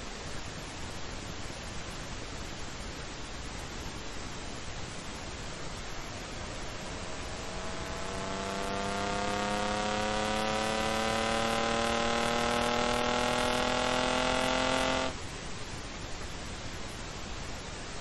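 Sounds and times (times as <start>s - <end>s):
wind and road noise: 3.8s - 18.0s
car engine accelerating: 5.6s - 15.2s.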